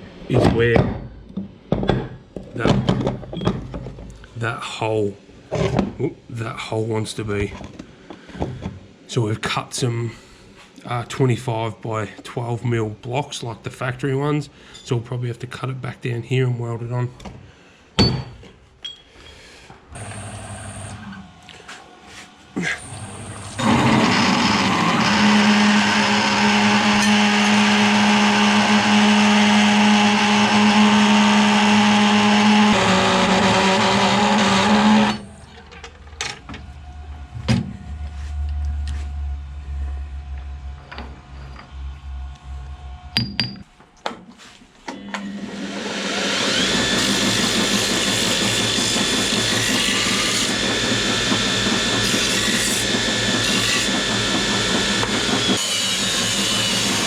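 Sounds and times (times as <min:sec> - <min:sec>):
power tool cutting metal: 0:22.8 - 0:35.4, 0:45.2 - 0:57.0.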